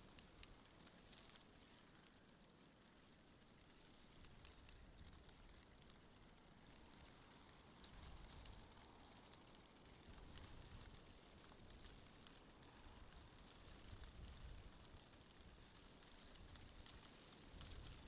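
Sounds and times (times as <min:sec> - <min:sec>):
light ticks: 0:03.6 - 0:15.0.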